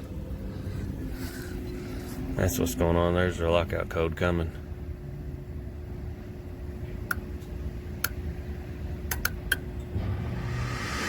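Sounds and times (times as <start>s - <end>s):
inducer motor humming: 9.8s - 11.0s.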